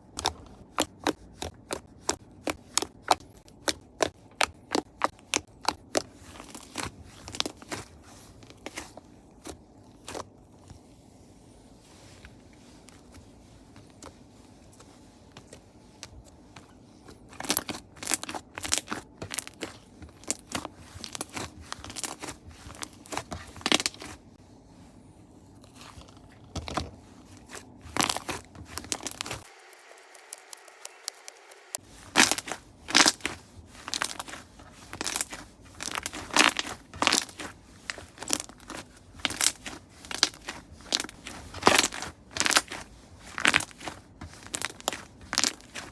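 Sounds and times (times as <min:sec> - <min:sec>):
slime crackling and popping: 0:17.4 - 0:24.0, 0:27.9 - 0:45.9.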